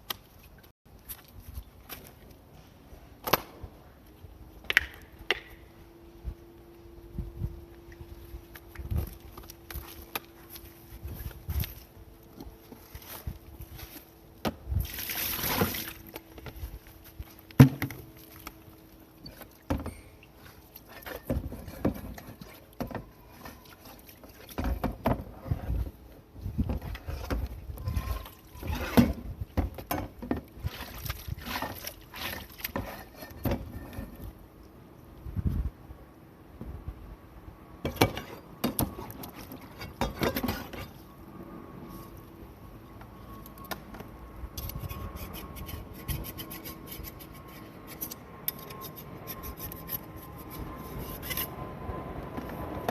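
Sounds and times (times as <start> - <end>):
water splashing and sloshing: 0.0 - 2.9, 7.6 - 34.7, 37.8 - 41.0.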